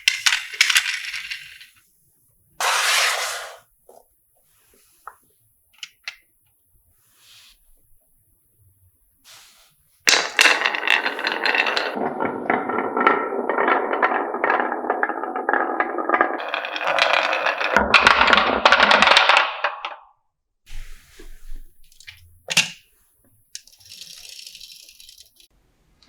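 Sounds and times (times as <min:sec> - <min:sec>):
marbles rolling down wooden tracks: 0:00.0 - 0:01.8, 0:02.6 - 0:03.7, 0:10.1 - 0:20.1, 0:23.6 - 0:25.5.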